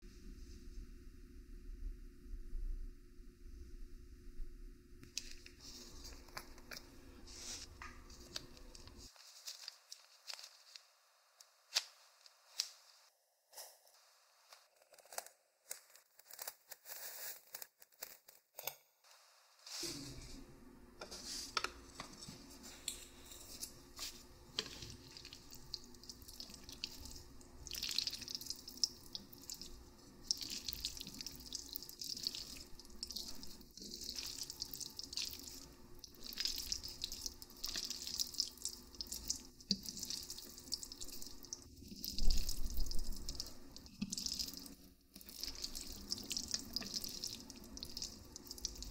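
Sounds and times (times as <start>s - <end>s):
wet noodle eating sounds: 24.0s - 48.9s.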